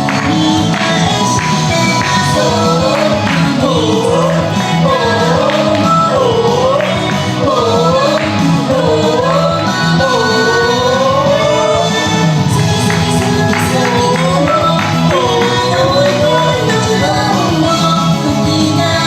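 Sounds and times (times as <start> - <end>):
upbeat backing track: 0.0 - 19.0
woman singing pop song: 0.0 - 19.0.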